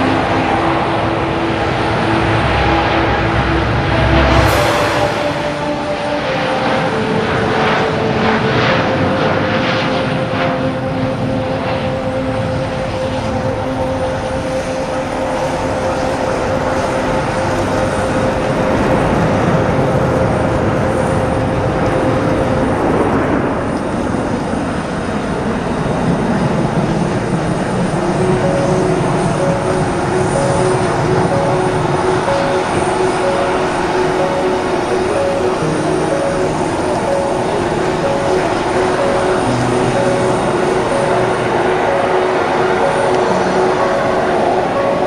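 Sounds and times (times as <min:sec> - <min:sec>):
airplane engine in flight: 0:00.0 - 0:45.0.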